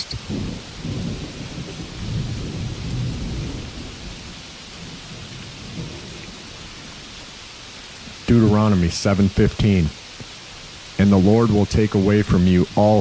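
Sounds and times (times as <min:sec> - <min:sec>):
thunder rumbling: 0:00.0 - 0:10.0
steady rainfall: 0:00.0 - 0:13.0.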